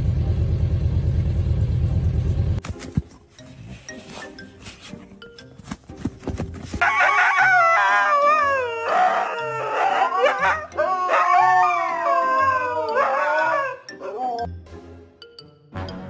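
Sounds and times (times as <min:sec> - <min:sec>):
dog howling: 0:07.0 - 0:14.5.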